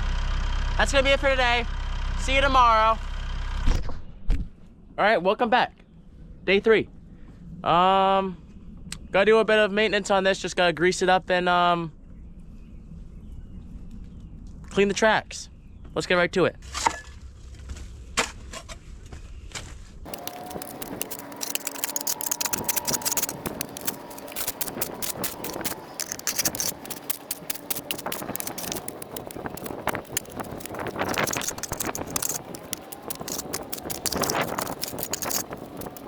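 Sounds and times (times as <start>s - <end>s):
mud scraped off excavator tracks: 20.1s - 36.0s.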